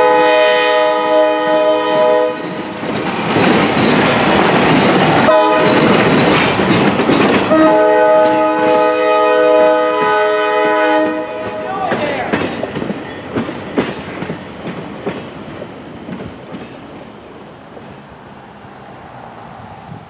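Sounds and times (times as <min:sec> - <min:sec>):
locomotive air horn blasts: 0:00.0 - 0:02.5, 0:05.3 - 0:05.9, 0:07.5 - 0:11.7
passing train rumble: 0:00.0 - 0:20.0.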